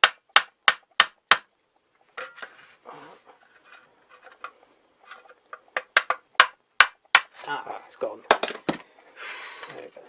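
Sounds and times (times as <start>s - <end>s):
faint scraping: 2.1s - 5.4s.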